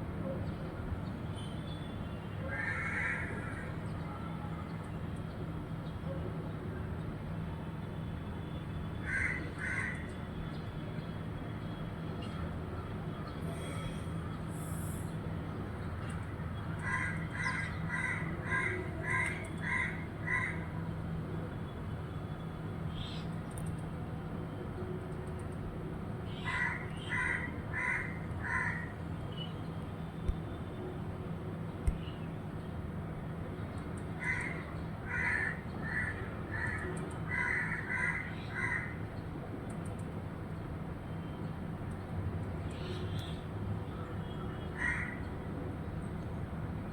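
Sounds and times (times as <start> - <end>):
crow cawing: 2.5 - 3.8, 9.0 - 10.1, 16.8 - 20.7, 26.4 - 29.0, 34.2 - 39.0, 44.8 - 45.2
bird harsh calls: 26.3 - 29.0, 34.2 - 39.0.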